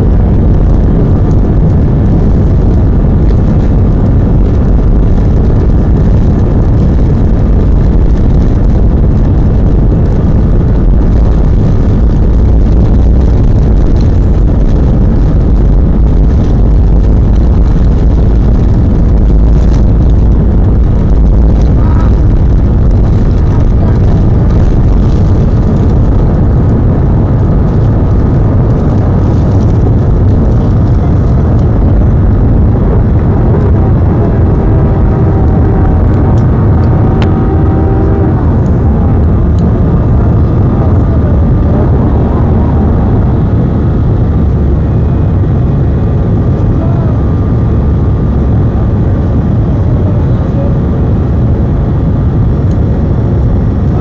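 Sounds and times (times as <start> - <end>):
deep rumble: 0.0 - 54.0
jet engines roaring: 0.0 - 54.0.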